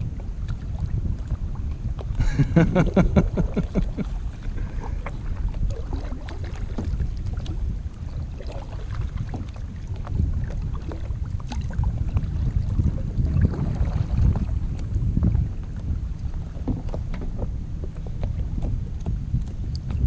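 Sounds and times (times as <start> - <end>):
water lapping: 0.0 - 20.0
wind rumbling on microphone: 0.0 - 20.0
small knocks against kayak: 3.8 - 7.6, 13.5 - 20.0.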